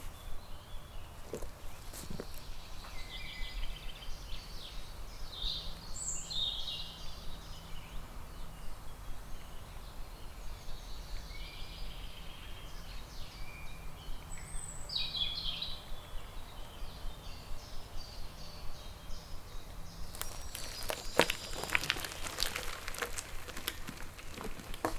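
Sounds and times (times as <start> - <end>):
songbirds singing and chirping: 0.0 - 24.9.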